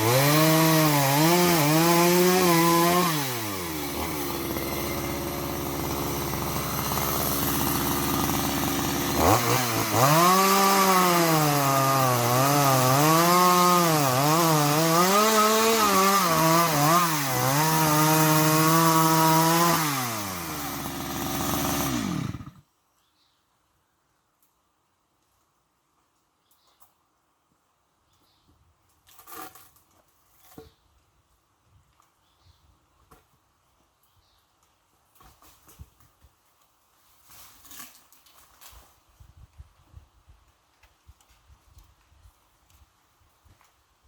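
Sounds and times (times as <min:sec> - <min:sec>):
chainsaw revving: 0:00.0 - 0:22.6.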